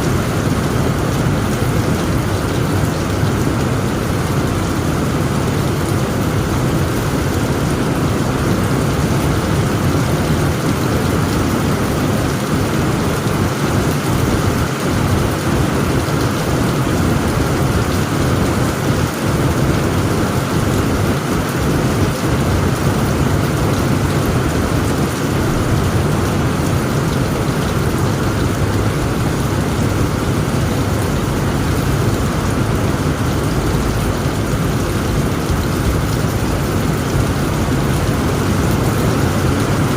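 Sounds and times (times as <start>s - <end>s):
heavy rain on a tent roof: 0.0s - 39.9s.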